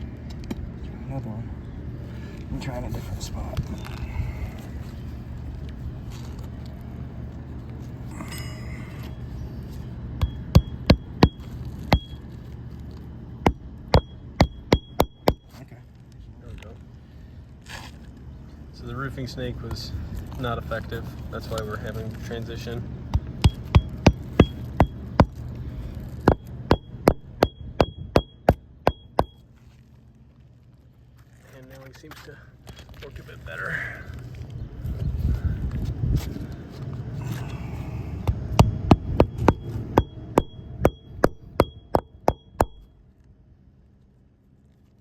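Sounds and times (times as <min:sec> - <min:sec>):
hammer striking nail: 0:13.5 - 0:15.5, 0:23.2 - 0:25.4, 0:26.2 - 0:29.4, 0:38.3 - 0:42.8.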